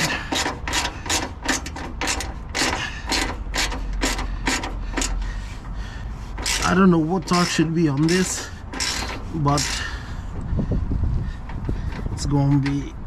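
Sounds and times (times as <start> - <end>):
ratchet wrench clicking: 0.0 - 5.2, 6.4 - 10.0.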